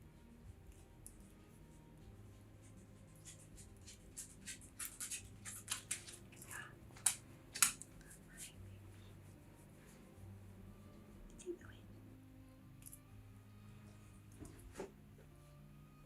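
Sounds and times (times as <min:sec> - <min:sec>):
crisp rustles and snips: 0:03.2 - 0:08.6.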